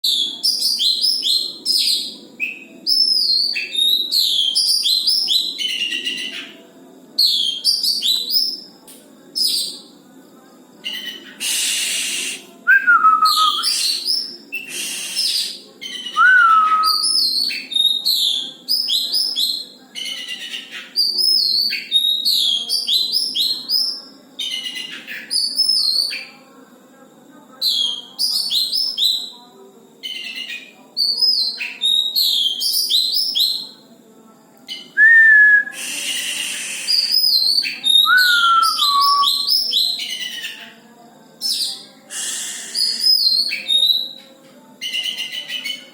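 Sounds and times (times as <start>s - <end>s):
songbird singing whistled notes: 0.0s - 6.6s, 7.2s - 8.7s, 10.8s - 26.3s, 27.6s - 29.3s, 30.0s - 33.8s, 34.7s - 40.8s, 41.4s - 45.9s.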